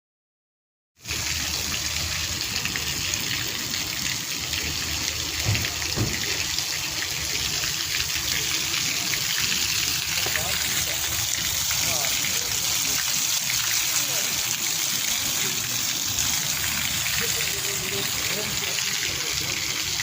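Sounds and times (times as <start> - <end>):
waterfall splashing: 1.1 - 20.0.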